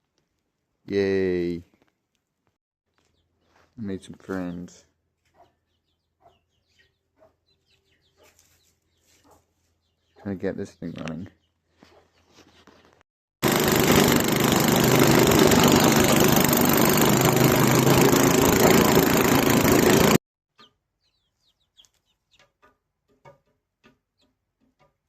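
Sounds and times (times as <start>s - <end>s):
snowblower engine running: 13.4s - 20.2s.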